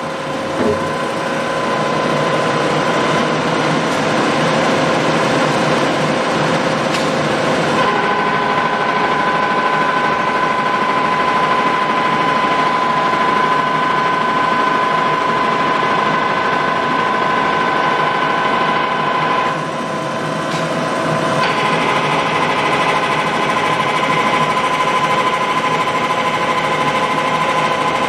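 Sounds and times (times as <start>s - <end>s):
drill machine humming: 0.0s - 3.4s
high gear whine: 0.0s - 3.4s.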